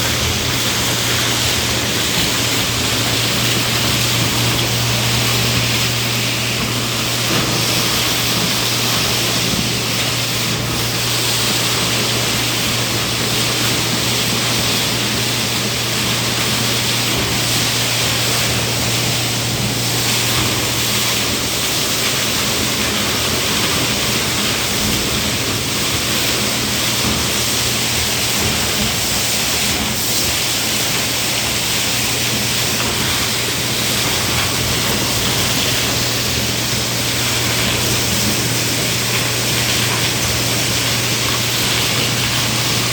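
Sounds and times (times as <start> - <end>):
motor hum: 0.0 - 42.9
vacuum machine air rush: 0.0 - 42.9.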